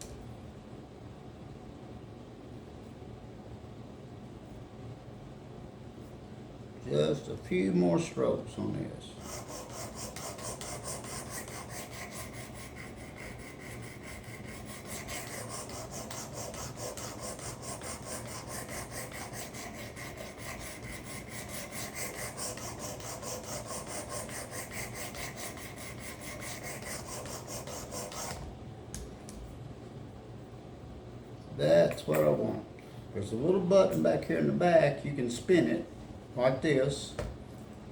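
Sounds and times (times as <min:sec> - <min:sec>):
sharpener rasping on knife blade: 0:09.2 - 0:28.4.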